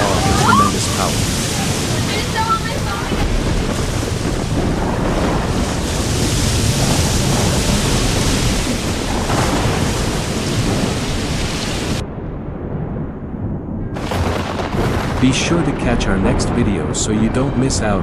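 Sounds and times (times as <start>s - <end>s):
hiss of pouring rain: 0.0s - 12.0s
low thunder-like rumble: 0.0s - 18.0s.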